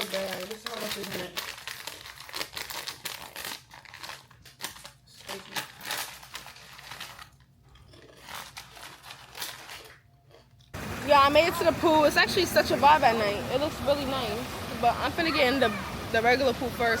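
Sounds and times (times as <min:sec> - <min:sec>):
bag crinkling: 0:00.0 - 0:10.7.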